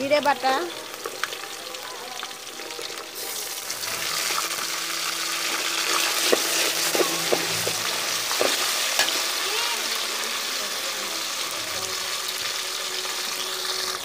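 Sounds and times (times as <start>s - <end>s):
paste sizzling in hot oil: 0.0s - 14.0s
stirring: 5.4s - 9.2s.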